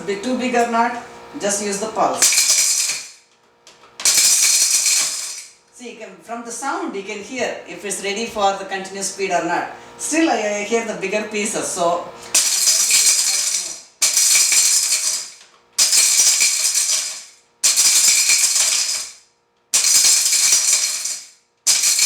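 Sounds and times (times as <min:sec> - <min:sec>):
mixer grinder pulsing: 0:01.2 - 0:03.2, 0:04.0 - 0:05.5, 0:11.6 - 0:19.2, 0:19.8 - 0:22.0
hard pieces rattling in jar: 0:02.2 - 0:03.2, 0:04.0 - 0:05.5, 0:12.3 - 0:19.2, 0:19.8 - 0:22.0.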